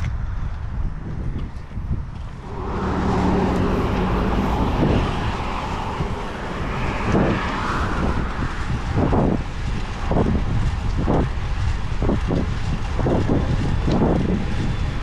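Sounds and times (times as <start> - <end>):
wind rumble on microphone: 0.0 - 15.0
car driving past: 2.3 - 10.3.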